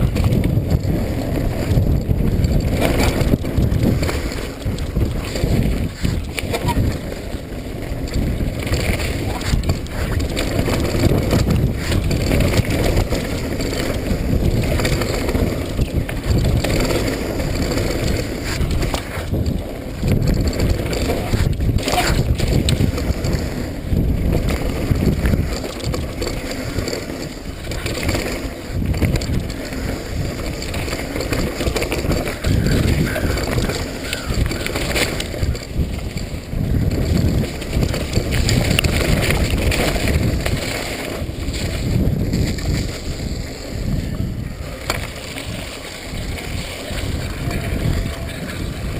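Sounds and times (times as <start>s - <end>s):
bike rattling down a trail: 0.0s - 48.9s
wind rushing over microphone: 0.0s - 48.9s.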